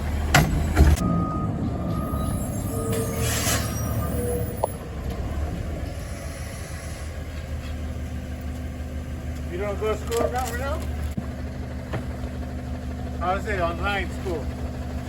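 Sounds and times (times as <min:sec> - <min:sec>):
garbage truck engine running: 0:00.0 - 0:15.0
brief beeps: 0:01.0 - 0:04.9.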